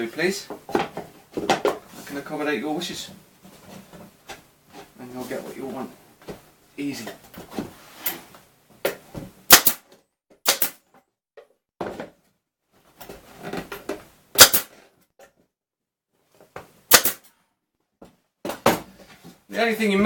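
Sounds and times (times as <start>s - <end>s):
nail gun shots into wood: 9.5s - 10.8s, 14.4s - 14.8s, 16.9s - 17.3s.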